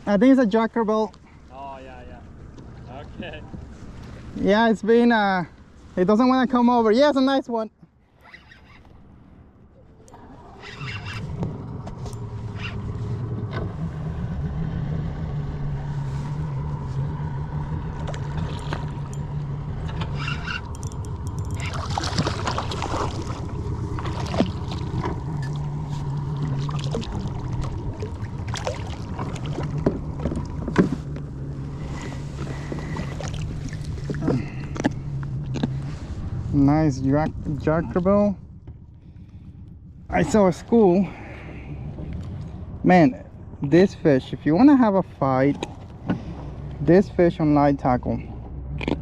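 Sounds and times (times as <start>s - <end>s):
water splashing: 15.6s - 36.2s.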